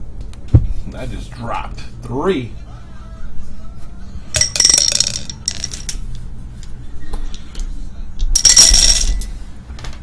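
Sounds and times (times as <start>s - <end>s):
dice clattering on hard surface: 4.4s - 6.0s, 8.4s - 9.3s.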